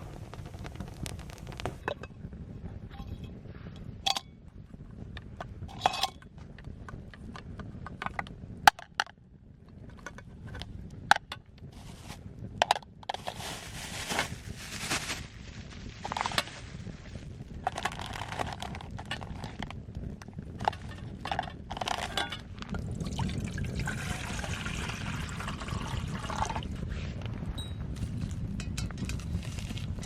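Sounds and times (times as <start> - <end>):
scraping or rustling: 11.7 - 12.2, 13.0 - 19.8, 29.0 - 30.0.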